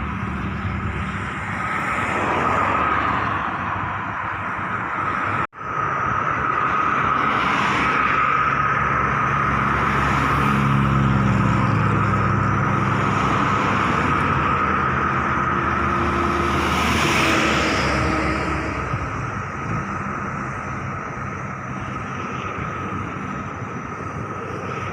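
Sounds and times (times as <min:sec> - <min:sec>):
turbine aircraft engine whine: 0:00.0 - 0:24.9.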